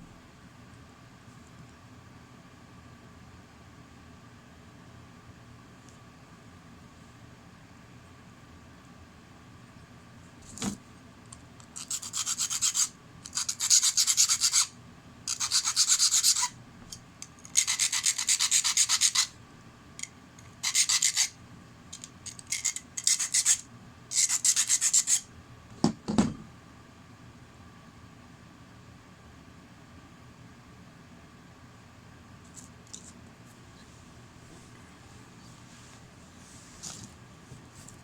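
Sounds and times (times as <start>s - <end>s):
knock: 25.8s - 26.4s.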